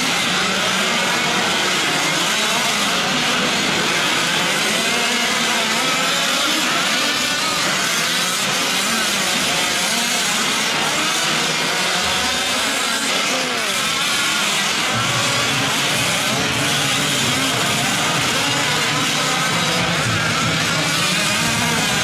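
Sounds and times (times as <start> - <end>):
small two-stroke engines buzzing: 0.0 - 22.0.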